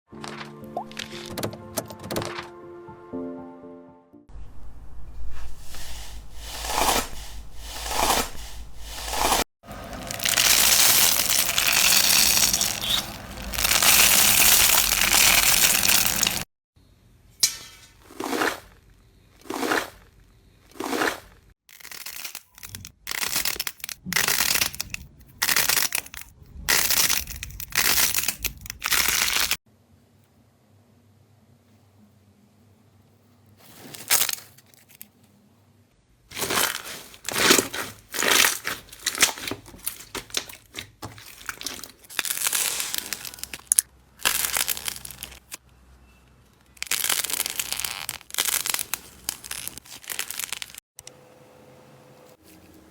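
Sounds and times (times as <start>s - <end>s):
slime squeezed crunchy crackling: 9.0s - 16.5s, 36.3s - 45.6s, 46.8s - 50.8s.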